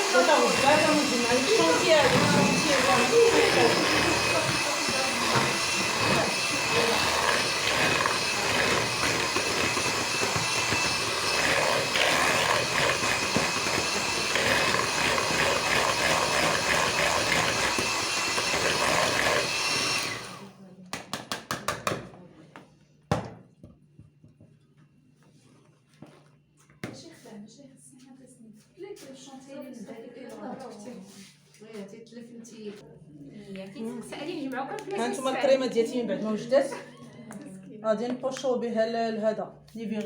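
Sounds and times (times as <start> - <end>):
electric mixer whipping cream: 0.0 - 20.6.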